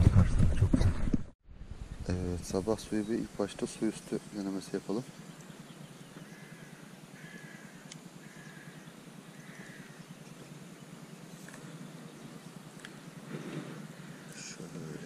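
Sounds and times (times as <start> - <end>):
bird calling: 2.6 - 15.0.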